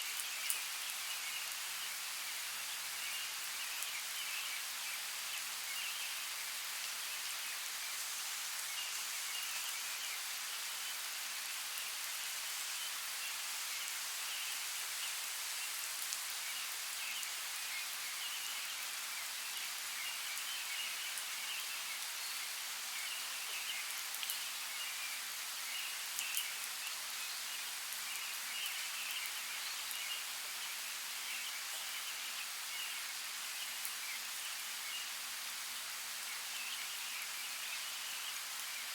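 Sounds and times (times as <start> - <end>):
steady rain hiss: 0.0 - 38.9
rain drop ticks: 23.8 - 24.4, 26.2 - 26.5.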